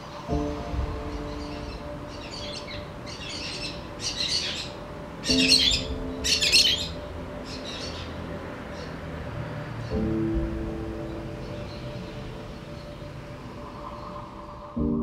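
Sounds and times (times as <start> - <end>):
birds twittering: 0.0 - 15.0
soft background music: 0.0 - 15.0.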